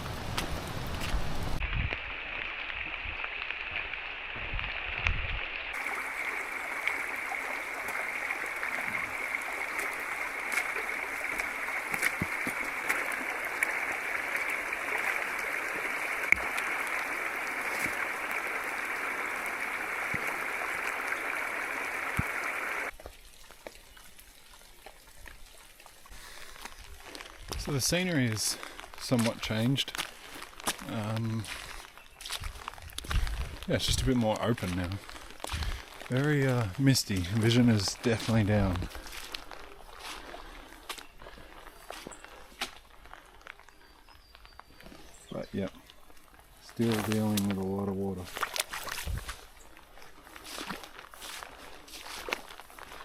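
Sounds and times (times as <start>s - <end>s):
rushing floodwater: 5.7s - 26.5s, 33.6s - 42.1s, 46.5s - 53.0s.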